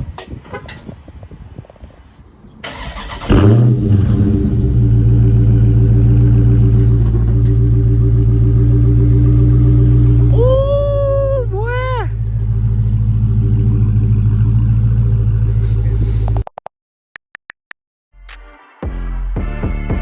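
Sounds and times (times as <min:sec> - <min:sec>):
car engine revving and idling: 0:03.2 - 0:16.3.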